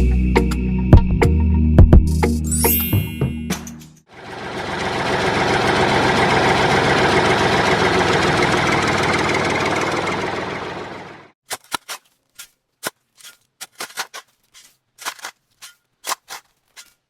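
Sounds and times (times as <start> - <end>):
music: 0.0 - 4.0
tractor engine chugging idle: 4.1 - 11.4.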